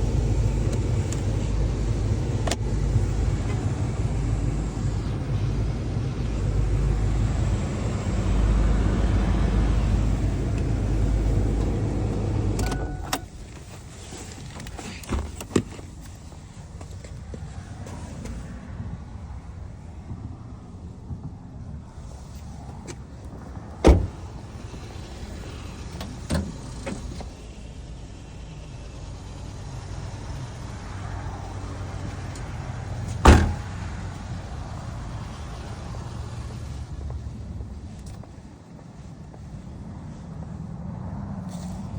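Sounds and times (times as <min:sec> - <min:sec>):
car engine idling: 0:00.0 - 0:17.6, 0:21.9 - 0:39.9
loud thump: 0:23.8 - 0:24.3, 0:33.2 - 0:33.7.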